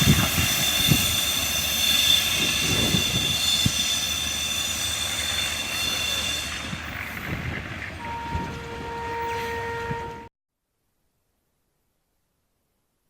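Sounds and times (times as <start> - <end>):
train knocks: 0.0 - 10.3
train rolling on rails: 0.0 - 10.3
wheels ringing whine: 0.0 - 10.3.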